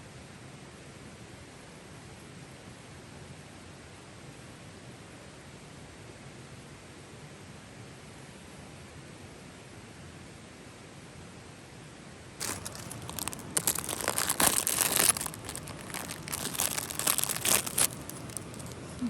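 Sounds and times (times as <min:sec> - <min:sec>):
material crinkling: 0:12.4 - 0:19.0.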